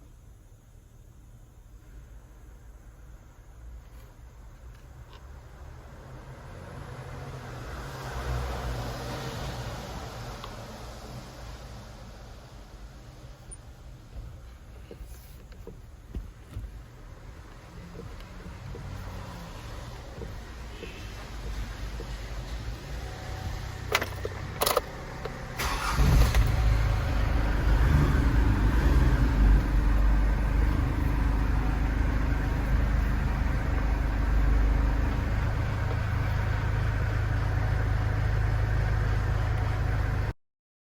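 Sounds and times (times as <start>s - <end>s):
truck engine starting and idling: 13.1s - 40.4s.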